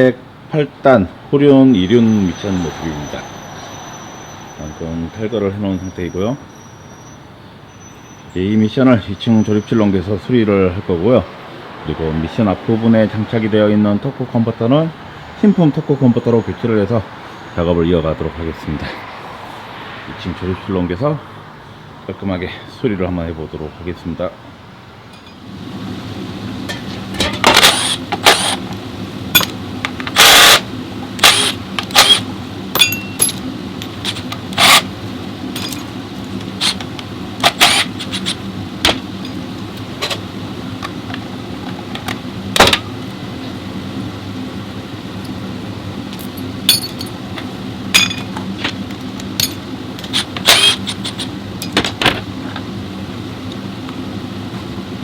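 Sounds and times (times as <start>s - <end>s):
machine hum: 24.8s - 55.0s.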